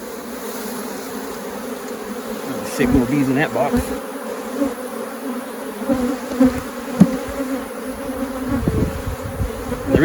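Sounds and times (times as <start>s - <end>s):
honeybees buzzing: 0.0s - 10.0s
short knocks on wooden frame: 6.5s - 7.4s.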